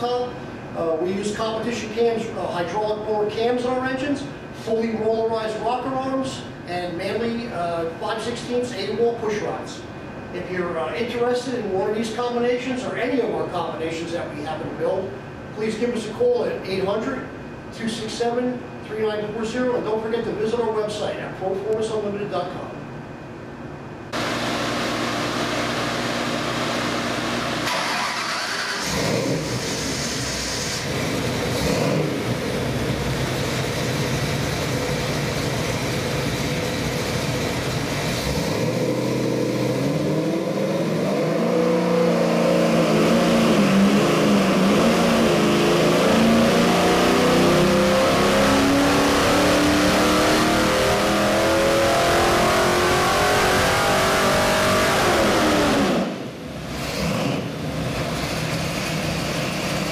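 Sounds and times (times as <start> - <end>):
vee eight engine revving: 24.2 - 33.6, 38.0 - 59.8.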